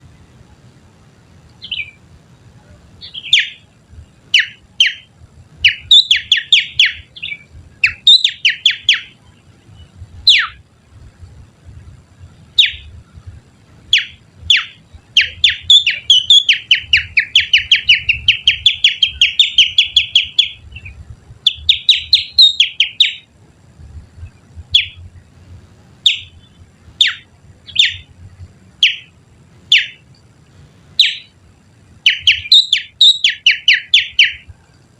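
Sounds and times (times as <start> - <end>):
finger whistling bird call: 32.1 - 34.4.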